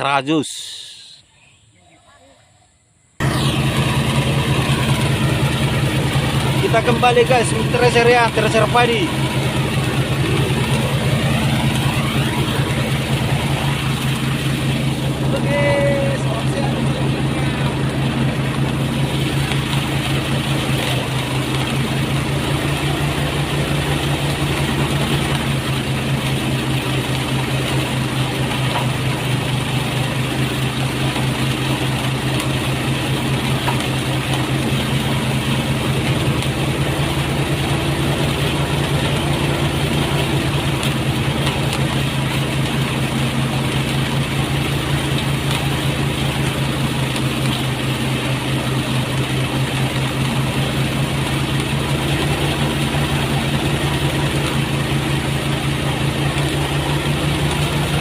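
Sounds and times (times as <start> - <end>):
threshing machine droning: 0.0 - 58.0.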